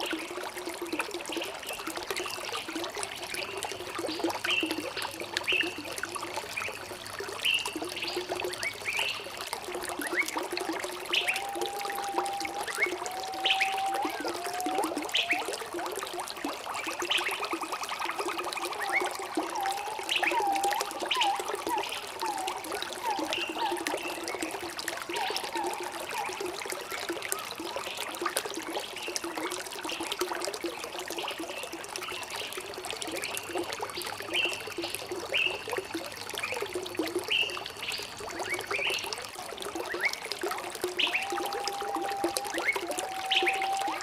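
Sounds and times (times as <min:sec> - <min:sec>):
stream trickling and gurgling: 0:00.0 - 0:44.0
bird calls: 0:11.1 - 0:15.5, 0:18.6 - 0:24.5, 0:40.9 - 0:44.0.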